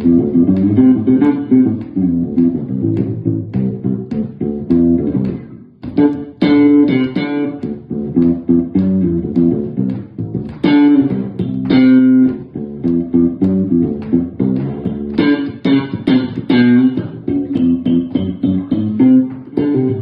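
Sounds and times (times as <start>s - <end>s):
bass guitar plucked notes: 0.0s - 20.0s.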